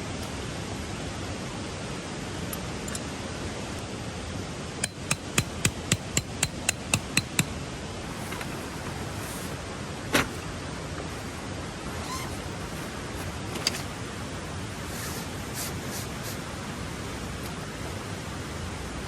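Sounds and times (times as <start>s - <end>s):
hammer blows on metal: 4.8s - 7.5s.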